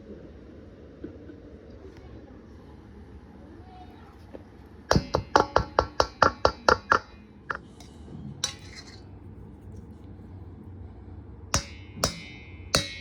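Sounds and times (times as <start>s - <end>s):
kitchen utensils knocking: 4.9s - 9.0s, 11.6s - 13.0s.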